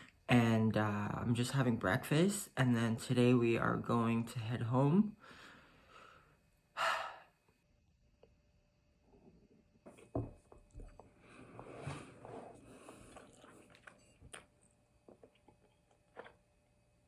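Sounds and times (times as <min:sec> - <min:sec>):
chewing: 0:12.5 - 0:16.4.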